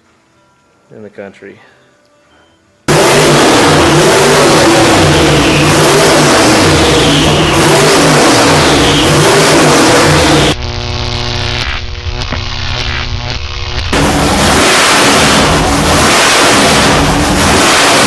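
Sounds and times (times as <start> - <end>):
car engine revving loudly: 2.9 - 10.6, 13.9 - 18.0.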